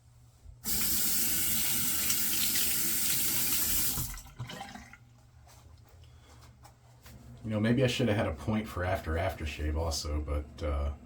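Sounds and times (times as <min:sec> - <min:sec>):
tap water running into sink: 0:00.7 - 0:05.0.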